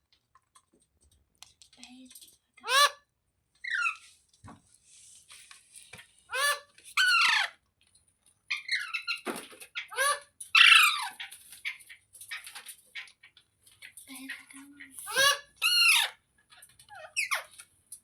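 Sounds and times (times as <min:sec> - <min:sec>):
parakeet shrill calls: 0:06.3 - 0:07.5, 0:15.1 - 0:16.2.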